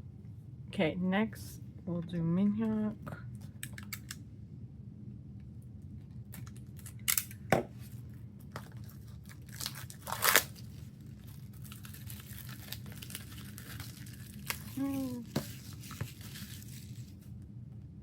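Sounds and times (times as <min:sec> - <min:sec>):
plastic crinkling: 0:08.4 - 0:17.3
plastic wrap ripping: 0:08.5 - 0:17.2.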